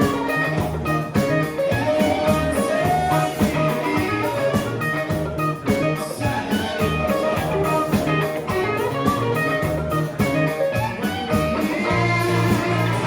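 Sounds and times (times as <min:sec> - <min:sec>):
rock band instrumental: 0:00.0 - 0:13.0.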